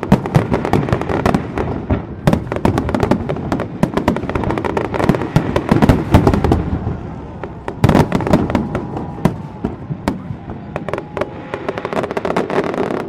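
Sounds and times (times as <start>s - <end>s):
fireworks bursting and crackling: 0.0s - 13.0s
heavy firework boom: 5.2s - 12.6s.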